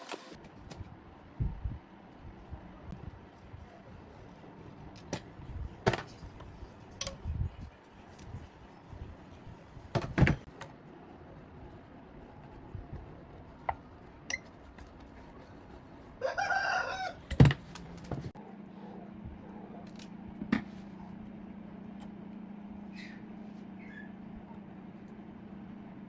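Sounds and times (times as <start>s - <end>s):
steady low hum: 0.1s - 16.2s, 17.1s - 26.0s.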